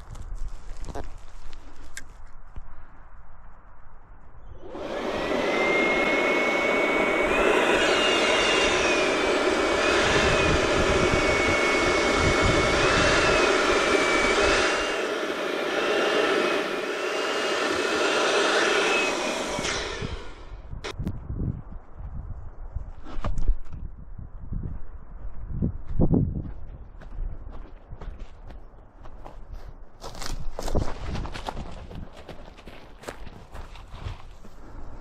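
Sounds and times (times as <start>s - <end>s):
electric balloon inflator running: 4.6s - 21.0s.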